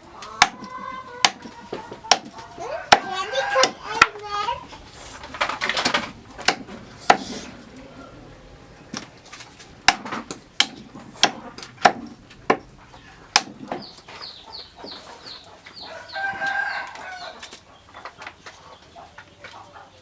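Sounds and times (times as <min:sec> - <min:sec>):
chicken calling: 0:00.0 - 0:09.3, 0:12.8 - 0:20.0
sharp knocks: 0:00.4 - 0:04.2, 0:05.4 - 0:07.4, 0:09.8 - 0:14.0
small bird chirping: 0:12.9 - 0:20.0.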